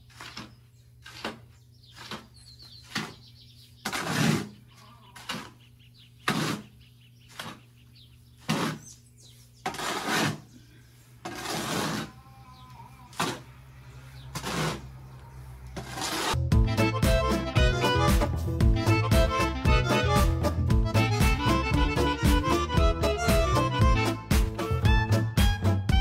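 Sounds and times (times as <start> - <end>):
hand tool scraping mortar: 0.0 - 5.6, 6.2 - 7.7, 8.4 - 9.0, 9.6 - 12.4, 13.0 - 13.6, 14.2 - 15.1, 15.7 - 16.4.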